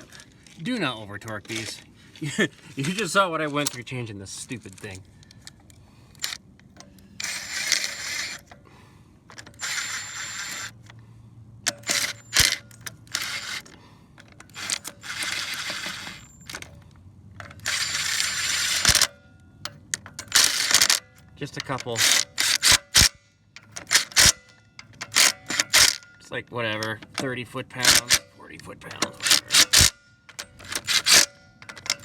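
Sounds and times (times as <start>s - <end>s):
socket ratchet clicking: 11.7s - 16.8s, 17.4s - 28.3s, 28.9s - 32.0s.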